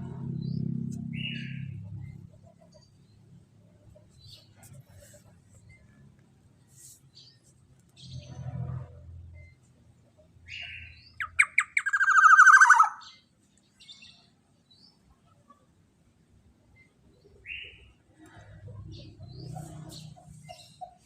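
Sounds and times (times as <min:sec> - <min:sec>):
bird calling with buzzy rattle: 0:10.5 - 0:13.3.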